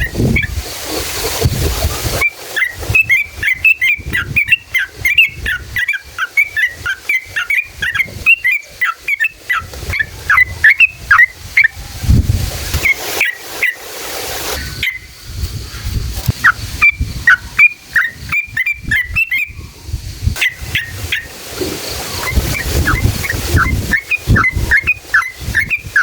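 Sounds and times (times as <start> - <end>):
bird chattering whistled song: 2.2 - 11.8, 12.7 - 13.8, 14.6 - 15.1, 16.4 - 19.7, 20.4 - 21.4, 22.1 - 26.0.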